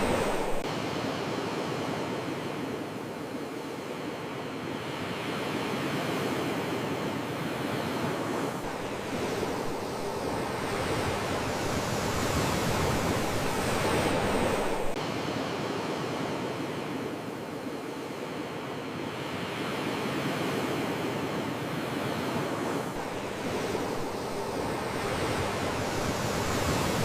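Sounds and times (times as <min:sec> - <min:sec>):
sea waves washing: 0:00.0 - 0:03.8, 0:08.1 - 0:18.2, 0:19.6 - 0:27.0.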